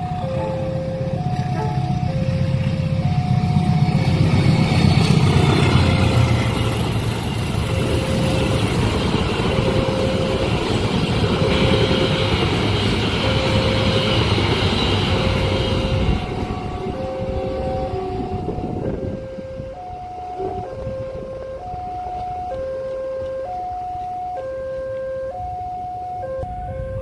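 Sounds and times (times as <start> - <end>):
train wheels squealing: 0.0 - 17.4
carriages rolling over rails: 0.0 - 23.0
crossing warning alarm tone: 0.0 - 27.0
diesel locomotive rumble: 0.0 - 27.0.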